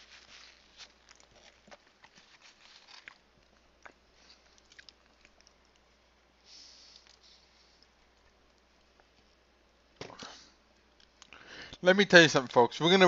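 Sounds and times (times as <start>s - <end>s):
quiet chewing: 0.0s - 6.2s, 10.3s - 11.4s.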